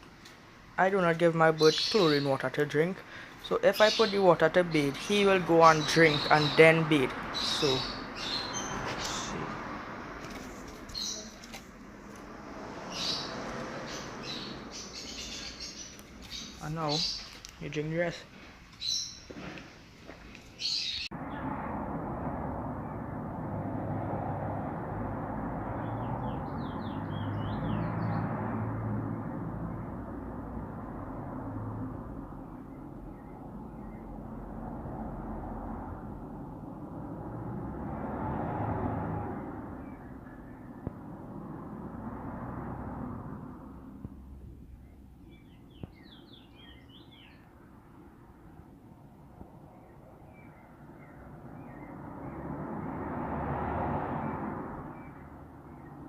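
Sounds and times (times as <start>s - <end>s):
bird twittering chirps: 3.4s - 9.4s, 10.9s - 11.4s, 12.9s - 17.7s, 25.8s - 28.3s, 44.6s - 47.5s
small bird chirping: 10.9s - 11.6s, 12.9s - 17.7s, 44.5s - 47.5s.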